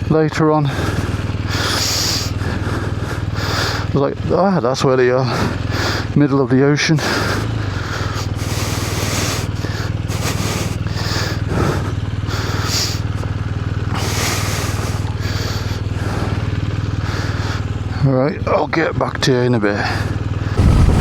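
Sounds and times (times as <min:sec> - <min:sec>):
motorcycle engine running: 0:00.0 - 0:21.0
wind rush: 0:20.6 - 0:21.0.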